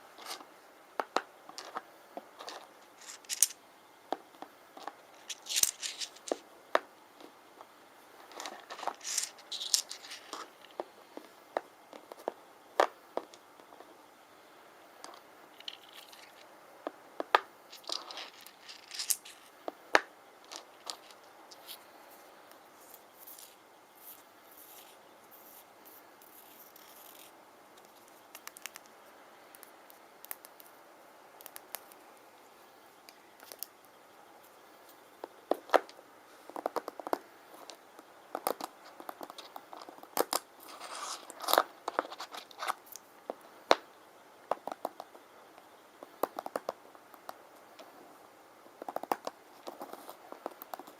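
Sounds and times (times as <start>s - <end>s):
stones clicking and knocking: 0.2s - 7.4s, 8.2s - 13.8s, 15.0s - 30.7s, 33.1s - 33.8s, 35.2s - 43.9s, 44.5s - 45.2s, 46.0s - 47.9s, 48.8s - 50.9s
stones scraping: 2.4s - 3.6s, 4.8s - 6.4s, 8.2s - 11.4s, 15.1s - 16.5s, 17.3s - 28.8s, 38.4s - 43.0s.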